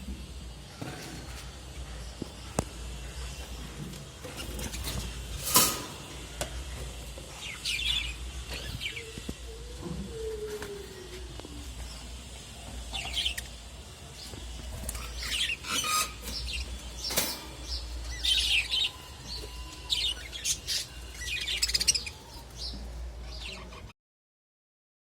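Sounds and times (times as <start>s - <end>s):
parrots chirping: 14.9s - 22.4s.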